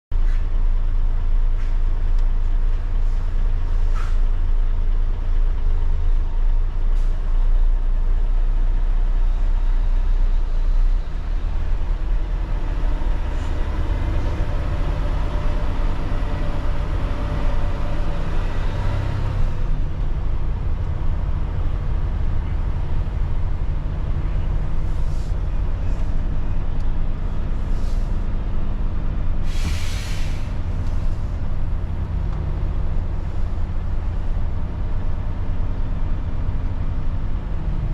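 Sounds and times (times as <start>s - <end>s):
diesel engine droning: 0.1s - 37.9s
brief hiss: 29.4s - 31.2s.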